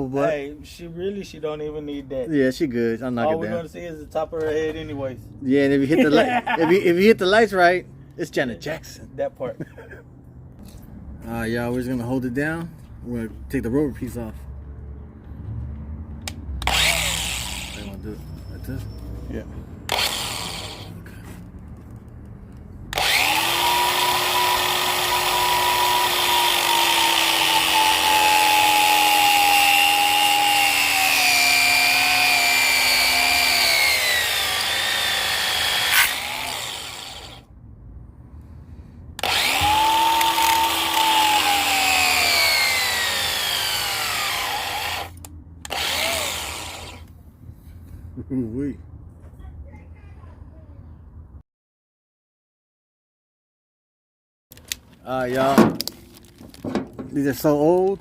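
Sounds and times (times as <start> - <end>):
power drill running: 16.6 - 18.0, 19.9 - 20.9, 22.9 - 37.4, 39.2 - 47.1.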